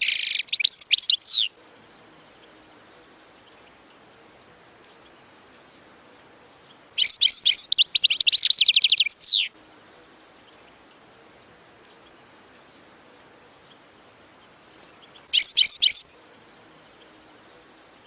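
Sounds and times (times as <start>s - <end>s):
goldfinch twittering and trilling: 0.0s - 1.5s, 6.6s - 9.5s, 14.4s - 16.1s.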